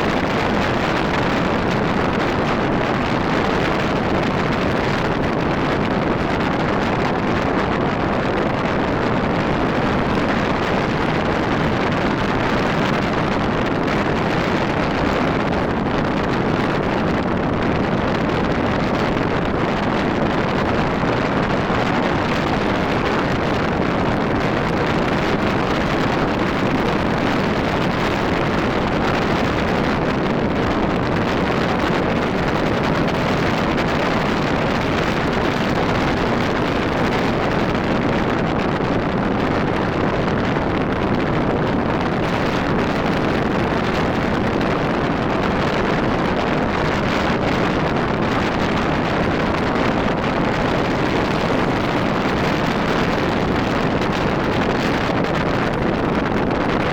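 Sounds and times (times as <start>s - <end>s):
wind rush on microphone: 0.0s - 56.9s.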